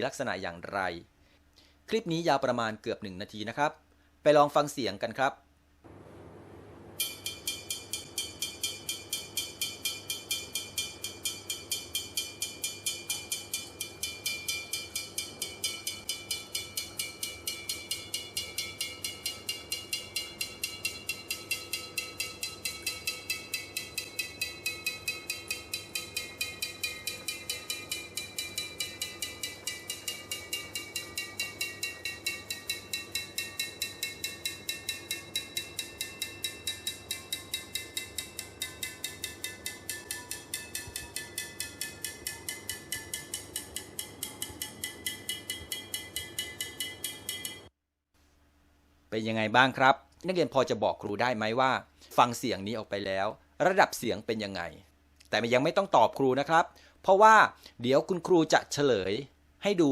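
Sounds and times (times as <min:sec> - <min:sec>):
ringing object tapped: 0:07.0 - 0:47.7.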